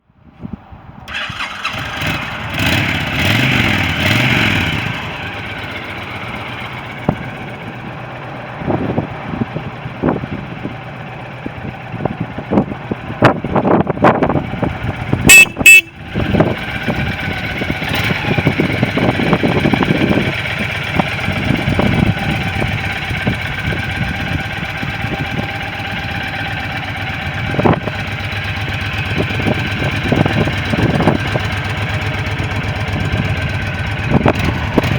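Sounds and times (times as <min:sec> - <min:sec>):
motorcycle engine revving and idling: 0:01.0 - 0:34.9
horn beeps: 0:15.3 - 0:16.1.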